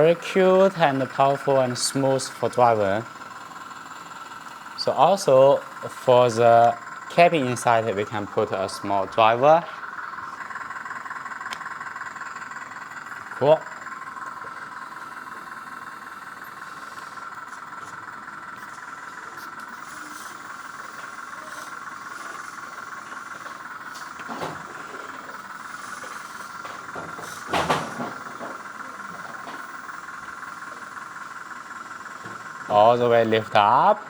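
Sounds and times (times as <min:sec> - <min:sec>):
hydraulic pump whining: 0:00.0 - 0:34.0.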